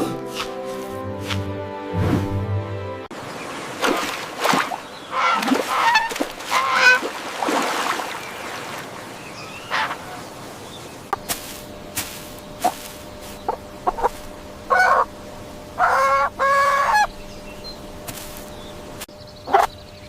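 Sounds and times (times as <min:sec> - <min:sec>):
music: 0:00.0 - 0:03.1
geese honking: 0:05.1 - 0:07.1, 0:09.4 - 0:10.4, 0:13.4 - 0:15.2, 0:15.8 - 0:17.2.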